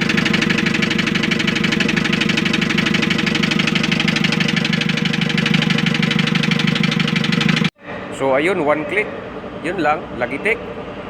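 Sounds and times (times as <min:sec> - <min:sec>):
van engine knocking: 0:00.0 - 0:07.7.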